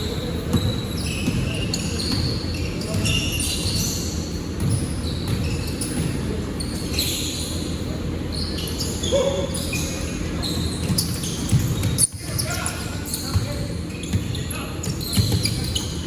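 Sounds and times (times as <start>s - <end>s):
sneakers squeaking on floor: 0.0s - 16.0s
voices echoing in hall: 0.0s - 16.0s
basketball bouncing on court: 0.4s - 6.3s, 10.8s - 16.0s.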